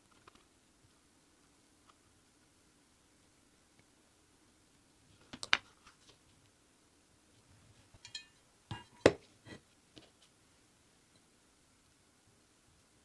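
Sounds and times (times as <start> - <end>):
short metallic ring: 8.0 - 8.4.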